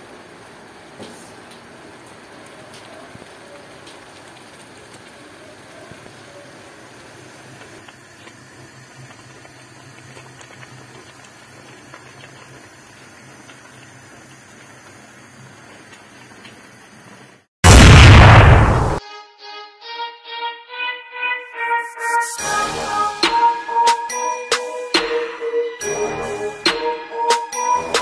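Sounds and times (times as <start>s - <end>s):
liquid boiling and bubbling: 0.0s - 17.5s
wood fire crackling: 0.4s - 19.0s.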